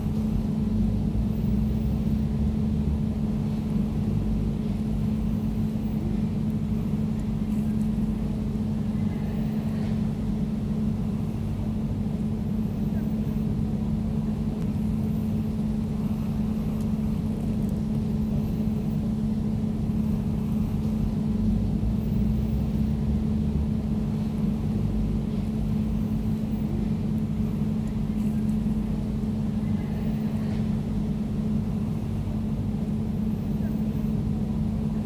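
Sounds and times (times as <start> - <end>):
air conditioner humming: 0.0 - 35.0.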